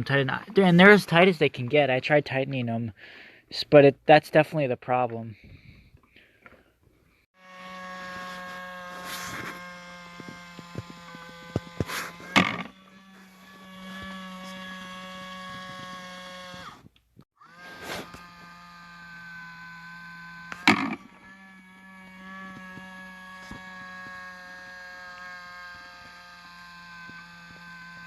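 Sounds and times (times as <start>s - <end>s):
small electric motor whining: 7.2s - 28.0s.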